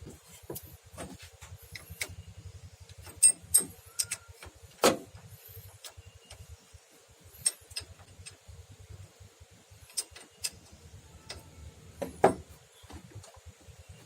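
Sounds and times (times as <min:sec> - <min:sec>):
tools clicking and knocking: 0:02.9 - 0:04.5, 0:09.9 - 0:10.6.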